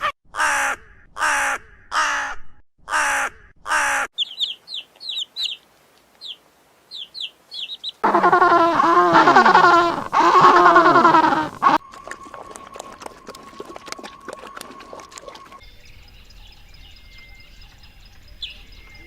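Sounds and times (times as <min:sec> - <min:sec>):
crow cawing: 0:00.4 - 0:04.1, 0:08.0 - 0:11.8
small bird chirping: 0:04.2 - 0:11.8, 0:15.6 - 0:19.0
chorus of animal calls: 0:07.0 - 0:11.8.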